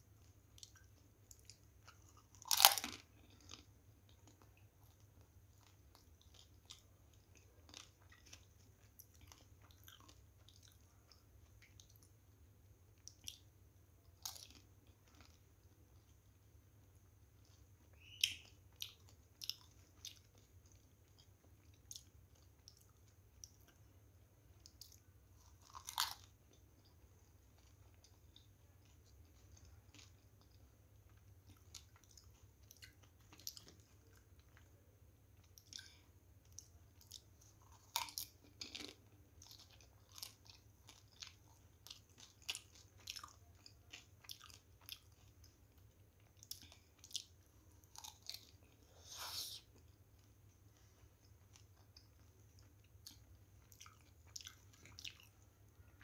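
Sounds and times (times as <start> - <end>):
person crunching crisp food: 1.3 - 5.0, 14.2 - 15.4, 24.7 - 26.3, 36.5 - 45.3, 46.3 - 49.6.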